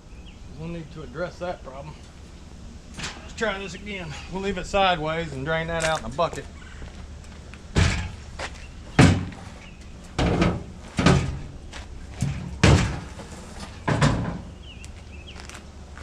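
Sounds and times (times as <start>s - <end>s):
heavy knocks of parts: 7.7s - 14.5s.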